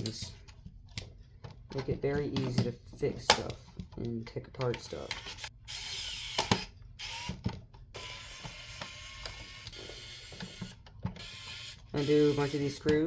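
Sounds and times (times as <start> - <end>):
plastic and metal parts handled: 0.0 - 5.5.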